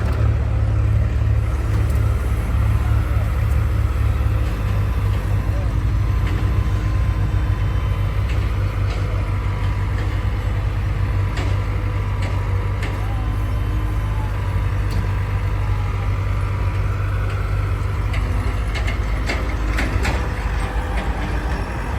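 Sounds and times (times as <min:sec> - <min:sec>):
heavy diesel engine running: 0:00.0 - 0:21.9.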